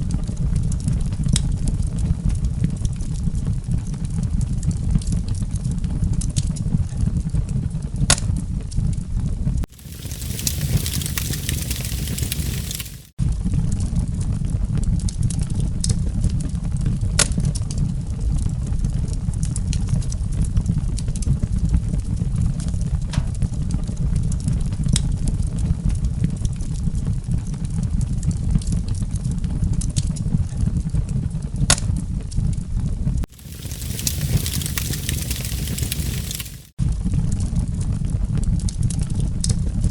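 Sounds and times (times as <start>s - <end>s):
wood fire crackling and popping: 9.7s - 13.2s, 33.3s - 36.8s.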